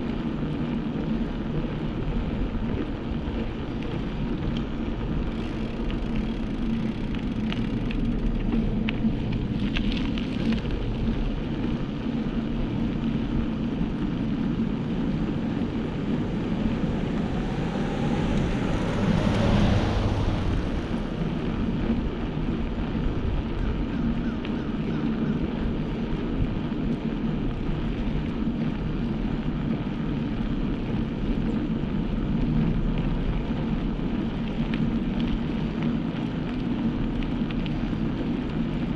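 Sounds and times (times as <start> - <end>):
road noise: 0.0 - 38.9
wind rush: 12.5 - 23.8.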